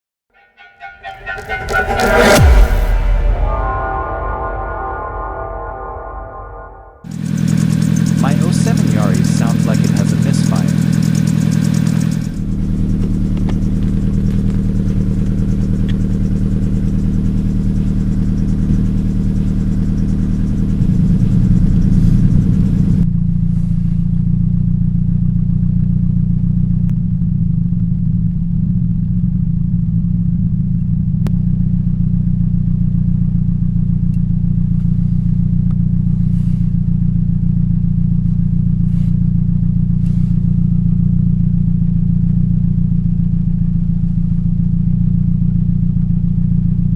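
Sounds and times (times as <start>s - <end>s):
car engine idling with misfire: 7.1s - 24.6s.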